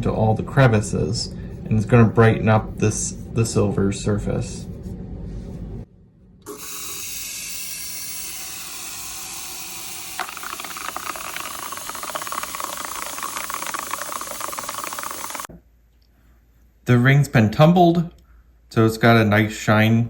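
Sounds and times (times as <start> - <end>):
tumbler hissing: 6.5 - 15.5
fast rattle of tiny pins: 10.0 - 15.5.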